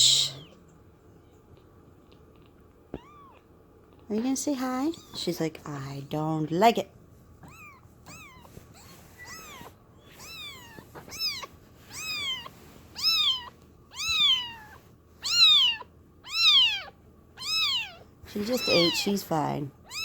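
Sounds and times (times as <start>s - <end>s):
kitten meowing: 2.9s - 3.5s, 7.4s - 19.1s.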